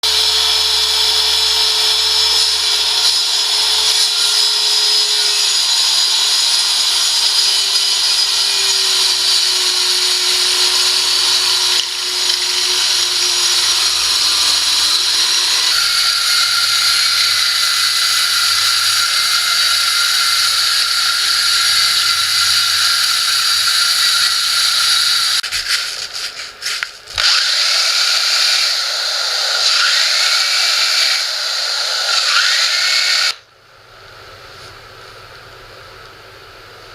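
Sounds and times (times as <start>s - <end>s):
power tool shaping wood: 0.0s - 33.4s.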